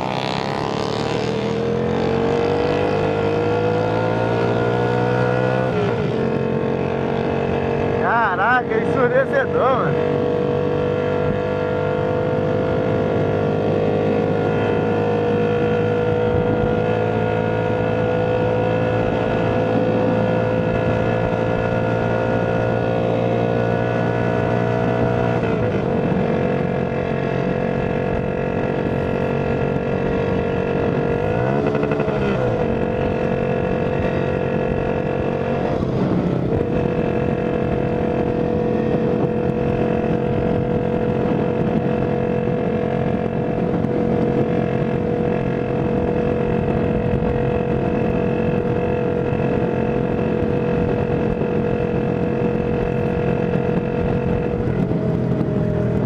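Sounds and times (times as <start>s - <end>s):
moped engine running: 0.0s - 56.0s.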